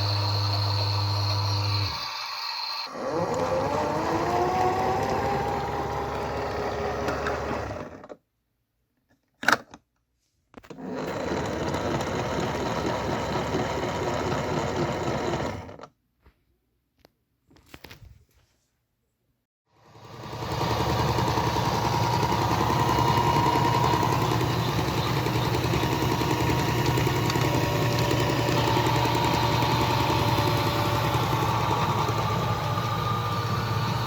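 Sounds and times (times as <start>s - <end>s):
washing machine motor whine: 0.0s - 8.1s, 19.8s - 34.0s.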